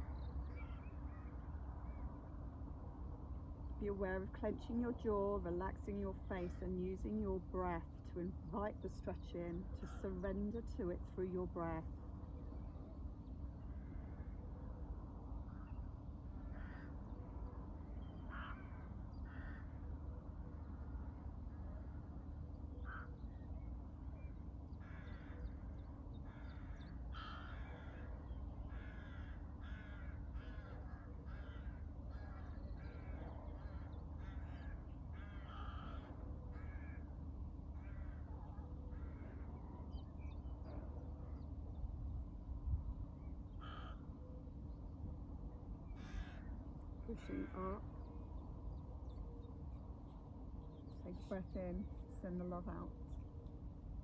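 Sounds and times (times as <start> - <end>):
low background hum: 0.0 - 54.0
crows cawing: 16.4 - 17.1, 18.2 - 20.1, 22.8 - 23.2, 24.8 - 39.6, 43.5 - 44.2, 45.9 - 47.7.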